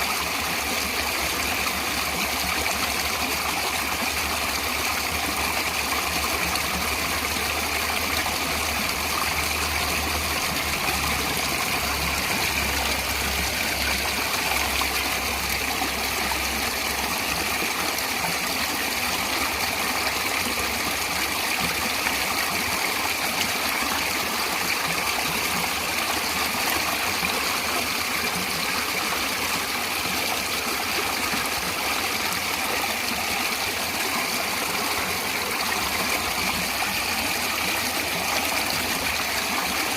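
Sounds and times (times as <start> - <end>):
stream water rushing and trickling: 0.0 - 39.9.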